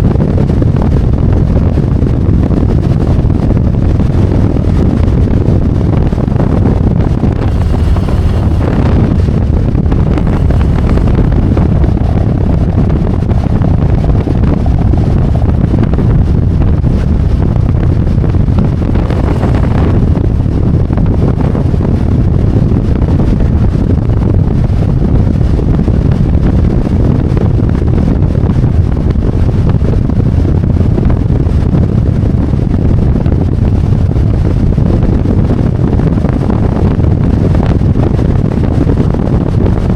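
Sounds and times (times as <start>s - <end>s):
wind buffeting microphone: 0.0s - 39.9s
motorcycle engine cruising: 4.9s - 21.8s.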